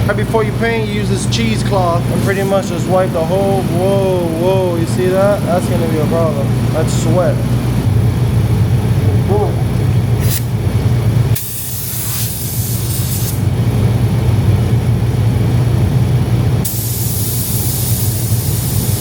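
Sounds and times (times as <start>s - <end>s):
steady low hum: 0.0s - 19.0s
spray gun hissing: 11.4s - 13.4s, 16.6s - 19.0s.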